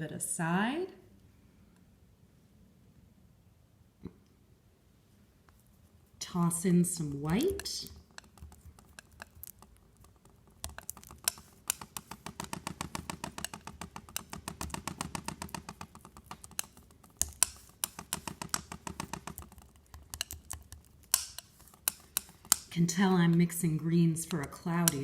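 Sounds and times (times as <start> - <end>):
palette knife tapping and scraping: 6.2 - 25.0.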